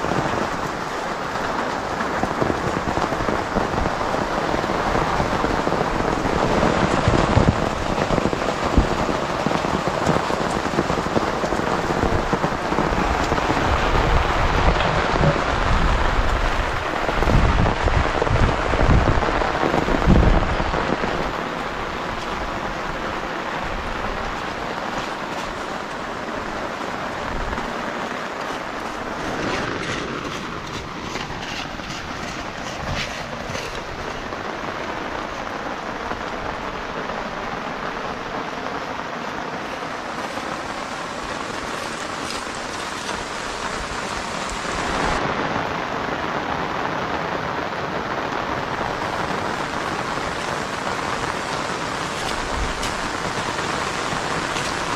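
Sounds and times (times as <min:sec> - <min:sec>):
rain falling: 0:00.0 - 0:54.9.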